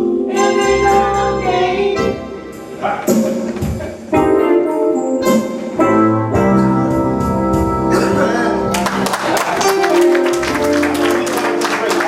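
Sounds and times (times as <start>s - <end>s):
keyboard sustained chords: 4.1s - 12.0s.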